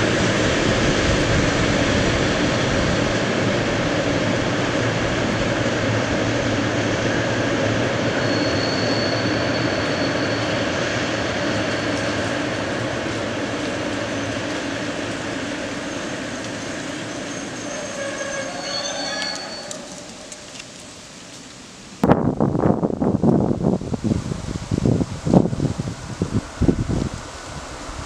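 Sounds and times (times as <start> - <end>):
freight train rumbling on rails: 0.0 - 28.0
high thin squeal: 8.0 - 12.5, 15.8 - 20.4.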